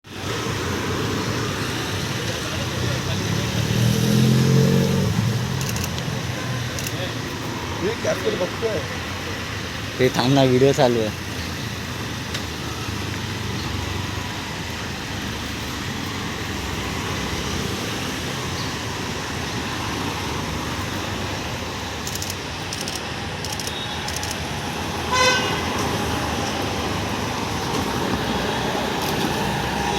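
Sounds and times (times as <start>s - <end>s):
street traffic noise: 0.0s - 29.9s
vehicle horn honk: 25.1s - 25.7s.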